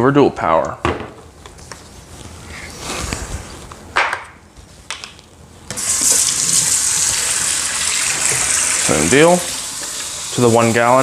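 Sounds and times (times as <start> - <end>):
sink tap turning on: 5.7 - 11.0
water running from tap: 5.8 - 11.0.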